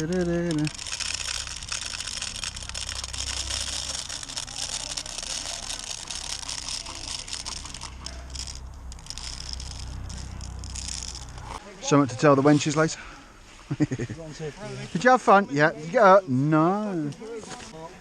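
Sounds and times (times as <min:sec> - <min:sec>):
loose plastic pellets rattling: 0:00.0 - 0:11.6.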